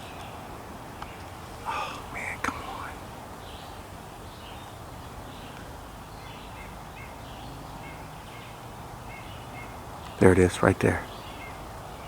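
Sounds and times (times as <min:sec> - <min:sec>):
background hiss: 0:00.0 - 0:12.0
bird calling: 0:01.0 - 0:04.8.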